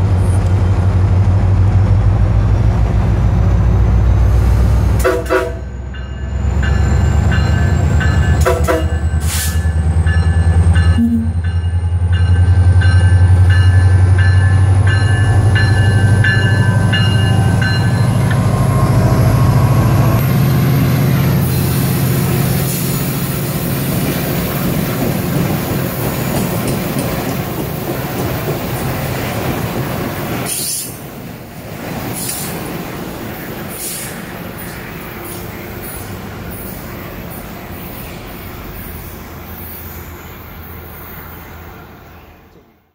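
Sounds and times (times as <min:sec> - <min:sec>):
diesel locomotive engine drone: 0:00.0 - 0:42.9
wheel and rail noise: 0:00.0 - 0:42.9
repeated ringing tone: 0:10.9 - 0:11.7.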